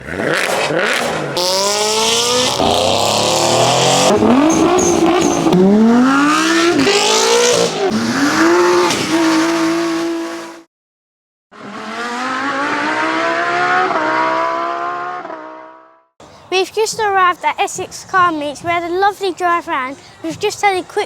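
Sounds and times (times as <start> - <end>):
car engines revving: 0.0 - 10.7, 11.6 - 16.0.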